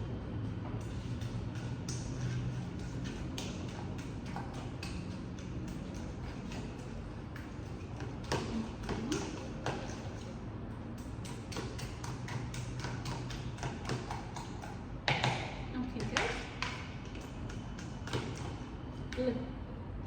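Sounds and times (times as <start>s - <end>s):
steady low hum: 0.0s - 20.0s
fork tapping against bowl: 11.0s - 15.4s.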